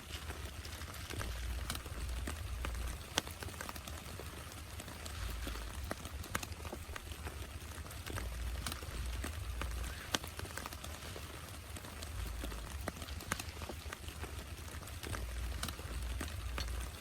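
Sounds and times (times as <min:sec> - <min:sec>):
heavy rain falling: 0:00.0 - 0:17.0
low rumble: 0:01.1 - 0:03.1.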